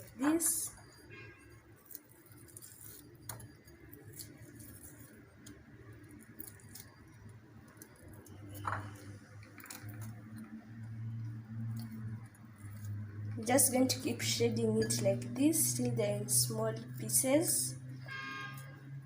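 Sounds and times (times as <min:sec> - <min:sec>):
fried chicken crackling when torn: 0:01.7 - 0:08.4.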